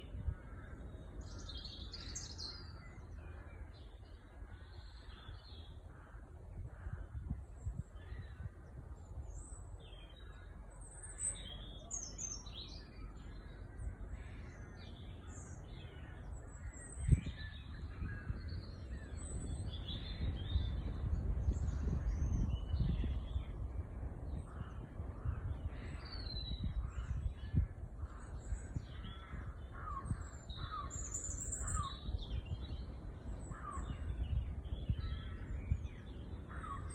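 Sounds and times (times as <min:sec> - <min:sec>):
small birds chirping: 0:25.6 - 0:36.9.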